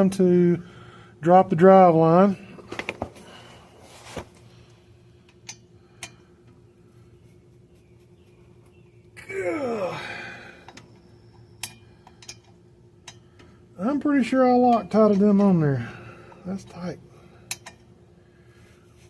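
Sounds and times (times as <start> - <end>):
faint steady hum: 0.0 - 19.0
man groaning: 9.2 - 10.6
tools clicking: 17.5 - 17.8.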